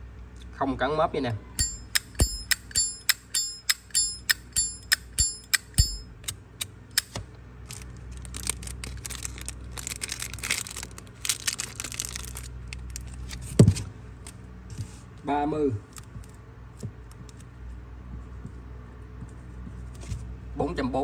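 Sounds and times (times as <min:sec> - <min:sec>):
crinkling rustling of handling: 0:07.6 - 0:15.2.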